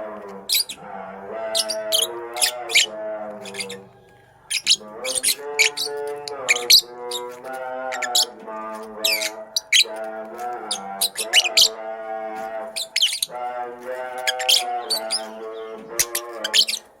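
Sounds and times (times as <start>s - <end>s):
lovebird chirping and squawking: 0.5s - 0.8s, 1.5s - 3.9s, 4.5s - 8.4s, 9.0s - 10.0s, 10.7s - 11.8s, 12.8s - 13.3s, 14.2s - 17.0s.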